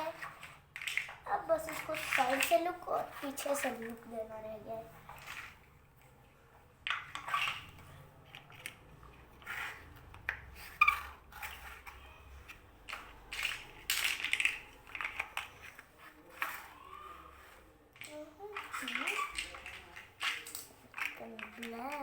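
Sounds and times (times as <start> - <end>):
plastic bricks rattling and clicking: 0.0 - 6.1, 6.8 - 22.0.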